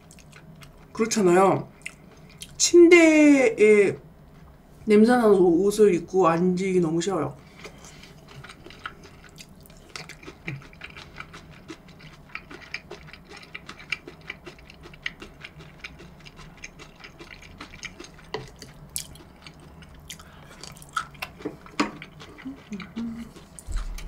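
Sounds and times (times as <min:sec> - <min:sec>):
chewing with wet mouth clicks: 0:00.0 - 0:01.0, 0:01.8 - 0:02.6, 0:07.6 - 0:24.0.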